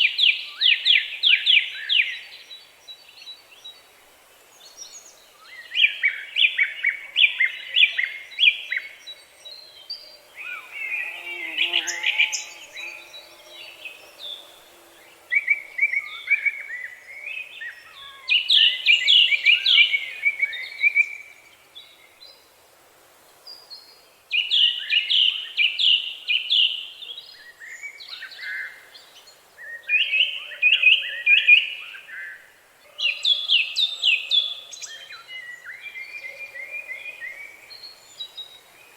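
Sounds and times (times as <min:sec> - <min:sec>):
songbird trilling: 0:10.3 - 0:20.0.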